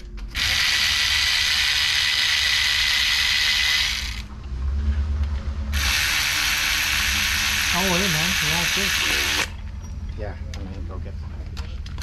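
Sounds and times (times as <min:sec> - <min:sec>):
power ratchet whirring: 0:00.3 - 0:04.3, 0:05.7 - 0:09.6.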